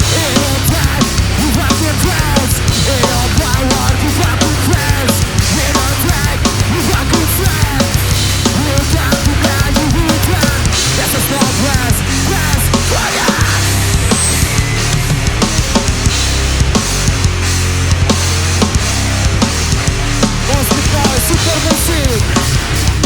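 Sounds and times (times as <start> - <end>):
hardcore band playing heavy music: 0.0 - 23.0
pounding drums: 0.0 - 23.0.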